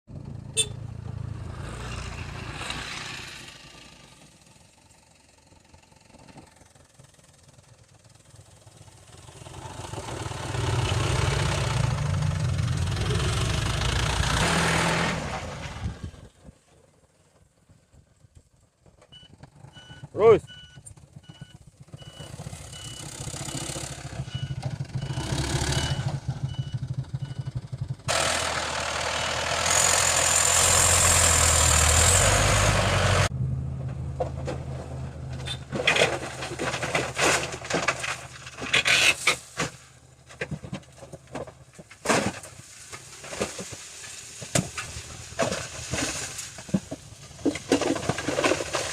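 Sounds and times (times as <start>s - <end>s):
dump truck engine: 0.1s - 48.9s
reversing beeper: 19.2s - 27.6s
knocks and clatter: 33.8s - 48.9s.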